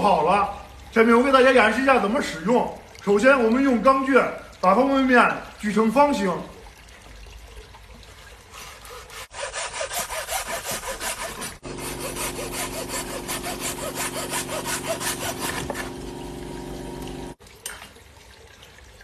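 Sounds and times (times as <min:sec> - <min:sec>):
hacksaw cutting: 0:08.6 - 0:16.0.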